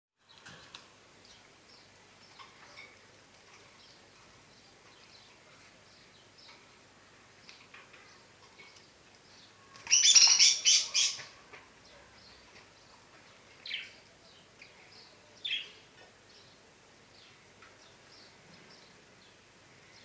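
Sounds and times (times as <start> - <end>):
harsh squabbling bird calls: 9.8 - 11.4
budgerigars chirping softly: 9.9 - 11.3.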